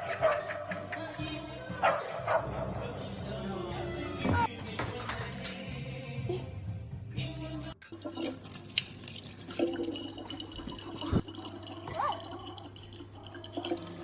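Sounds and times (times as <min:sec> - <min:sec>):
small water drips: 0:07.8 - 0:14.0
tap water running into sink: 0:07.9 - 0:14.0.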